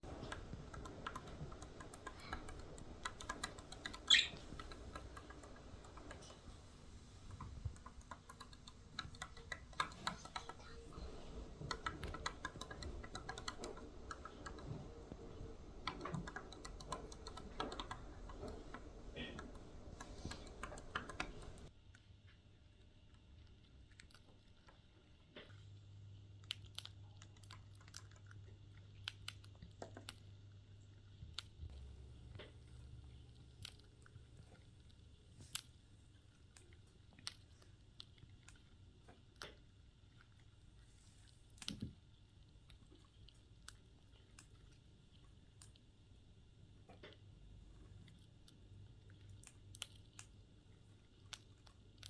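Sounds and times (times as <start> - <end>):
bird beak clicks and crunches: 0.0 - 21.7, 26.4 - 30.4, 48.0 - 50.4, 51.1 - 52.0
low steady hum: 0.0 - 21.7.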